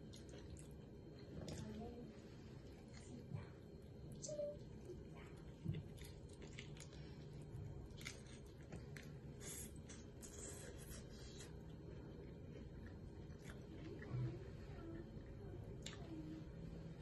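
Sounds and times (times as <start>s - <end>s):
person chewing fried chicken: 5.4s - 14.0s.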